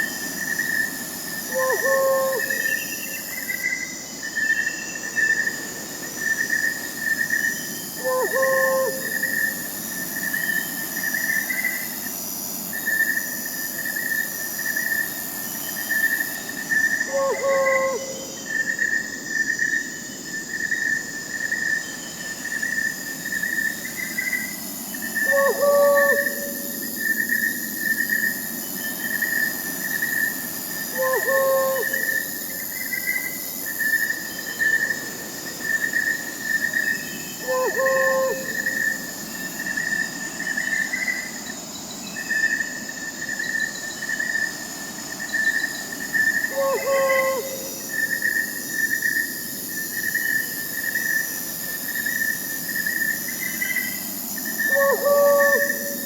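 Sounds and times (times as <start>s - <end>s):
crickets chirping: 0.0s - 56.0s
owl hooting: 1.5s - 2.9s, 8.0s - 9.4s, 17.1s - 18.3s, 25.2s - 26.8s, 30.9s - 32.3s, 37.4s - 39.0s, 46.4s - 48.1s, 54.6s - 56.0s.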